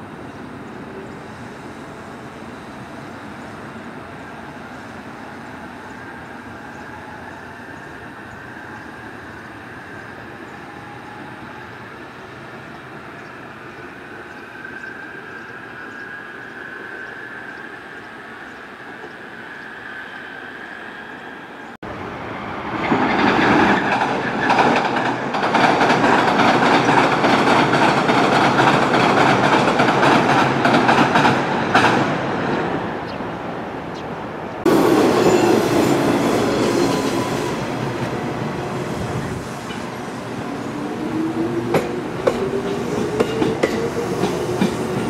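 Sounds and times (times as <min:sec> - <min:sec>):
train wheels clattering on bridge: 0:22.8 - 0:32.2, 0:41.6 - 0:45.0.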